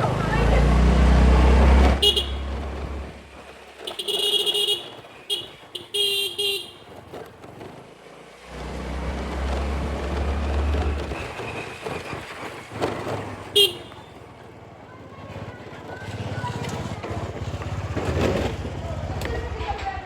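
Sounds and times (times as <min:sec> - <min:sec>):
low traffic rumble: 0:00.0 - 0:20.0
vehicle horns honking: 0:01.6 - 0:03.1, 0:03.8 - 0:07.0, 0:13.5 - 0:14.3.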